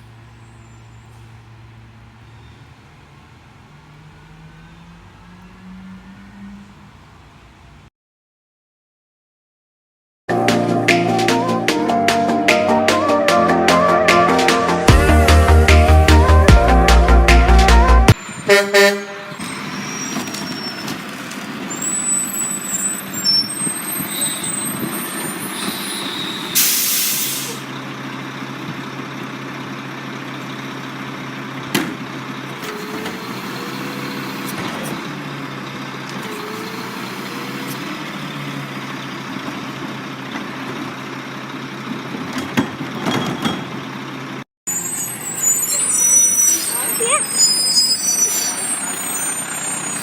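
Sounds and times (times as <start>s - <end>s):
garbage truck diesel engine humming: 0.0s - 7.8s, 10.3s - 50.0s
air hiss: 26.0s - 27.6s.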